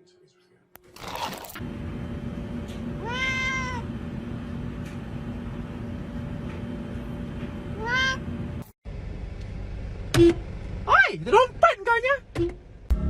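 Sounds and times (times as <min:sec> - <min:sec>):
steady low hum: 0:01.6 - 0:13.0
cat meowing: 0:03.0 - 0:03.9, 0:07.8 - 0:08.2.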